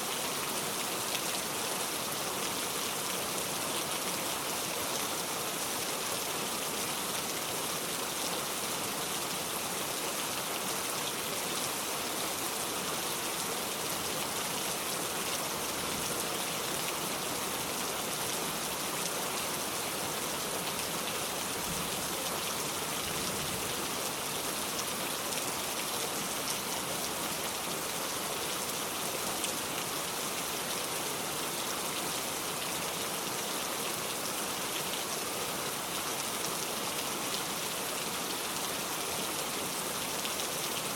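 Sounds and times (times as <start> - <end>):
heavy rain on a metal roof: 0.0 - 40.9.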